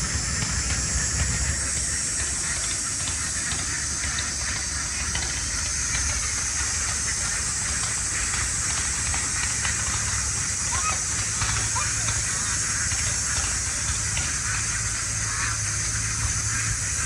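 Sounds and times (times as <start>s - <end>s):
outdoor ambience hiss: 0.0s - 17.0s.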